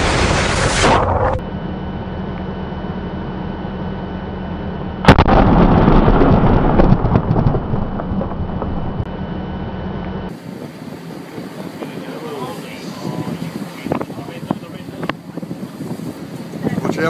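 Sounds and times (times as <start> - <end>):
loud explosion blast: 0.0 - 1.4, 5.0 - 9.1
rumbling and crackling: 0.0 - 1.5, 4.8 - 17.0.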